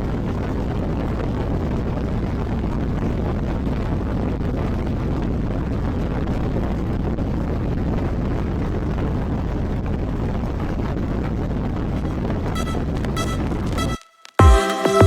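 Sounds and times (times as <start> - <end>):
wind rush on microphone: 0.0 - 13.8
music notes: 12.0 - 15.0.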